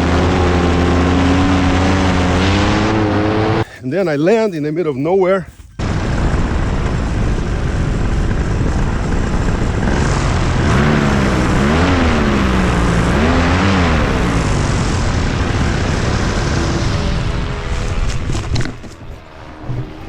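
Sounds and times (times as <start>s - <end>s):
light aircraft engine and propeller: 0.0s - 2.9s, 5.8s - 20.0s
wind noise: 5.5s - 20.0s.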